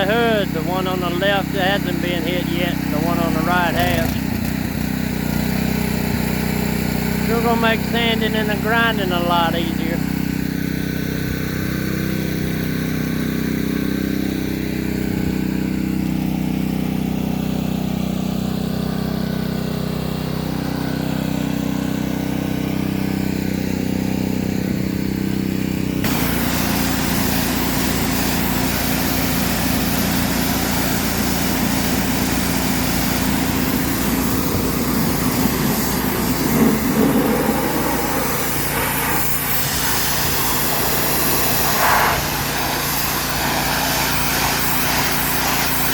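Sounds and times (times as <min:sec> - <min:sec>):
small engine running: 0:00.0 - 0:45.9
abrasive blasting hiss: 0:26.1 - 0:45.9.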